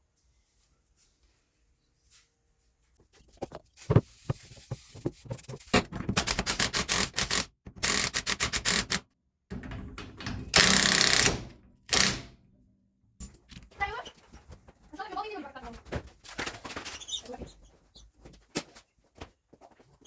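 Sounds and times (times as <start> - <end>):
rapid mechanical clicking: 6.1 - 9.1, 10.5 - 12.4
rasping burst: 10.5 - 12.4.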